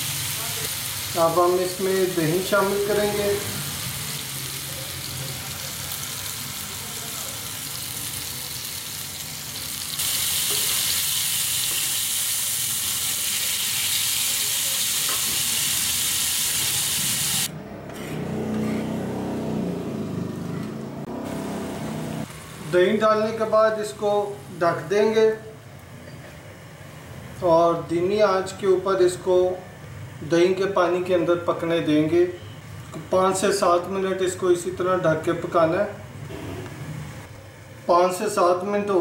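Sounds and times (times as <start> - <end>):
liver sizzling in oil: 0.0 - 17.5.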